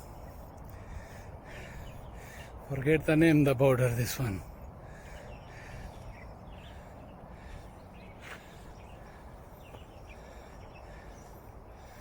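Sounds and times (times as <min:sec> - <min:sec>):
low background noise: 0:00.0 - 0:12.0.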